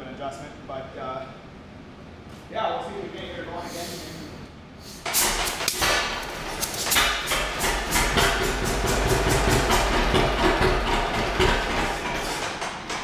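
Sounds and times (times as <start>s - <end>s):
tractor engine putt-putt exhaust: 5.0s - 13.0s.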